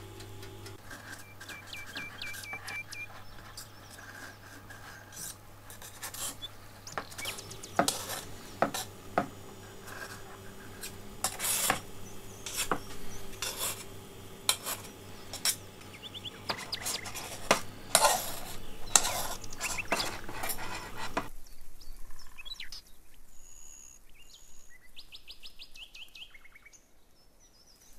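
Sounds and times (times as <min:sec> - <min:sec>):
metal blade scraping a pan: 0:00.7 - 0:21.3
faint short chirping tones: 0:01.2 - 0:03.8.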